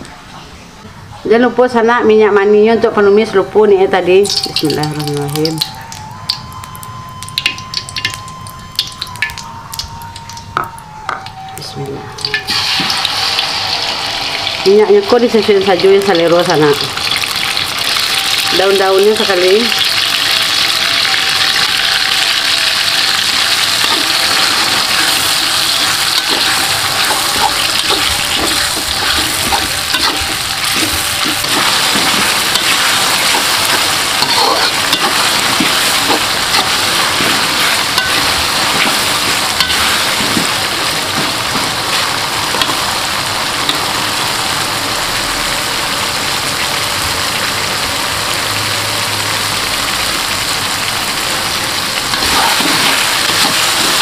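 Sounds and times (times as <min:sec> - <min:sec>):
spice paste sizzling in oil: 0:11.7 - 0:47.4, 0:49.5 - 0:54.0
metal spatula scraping wok: 0:19.2 - 0:43.0, 0:52.1 - 0:54.0.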